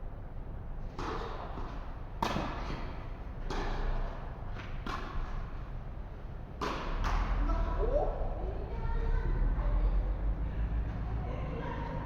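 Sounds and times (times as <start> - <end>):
racket hitting tennis ball: 0.9 - 4.0.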